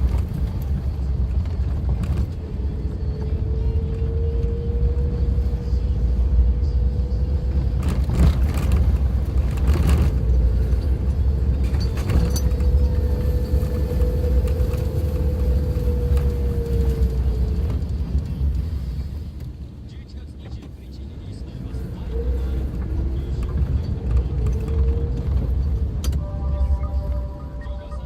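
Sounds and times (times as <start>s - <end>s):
drivetrain whine: 0.0s - 28.0s
vehicle rumble on dirt road: 0.0s - 28.0s.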